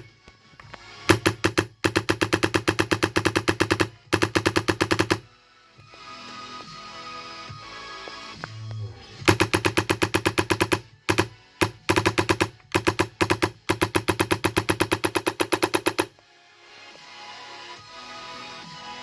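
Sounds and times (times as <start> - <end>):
airsoft gun firing bursts: 1.1 - 5.3, 9.3 - 16.2.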